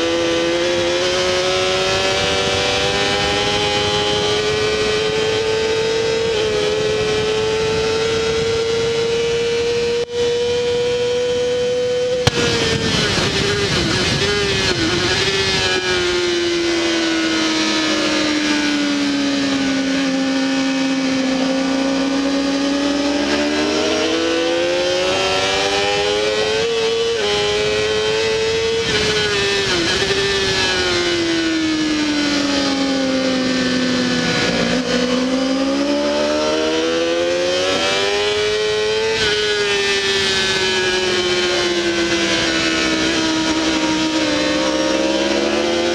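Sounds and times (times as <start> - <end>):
motorcycle engine at race pace: 0.0 - 45.9
wind rush: 12.2 - 24.2.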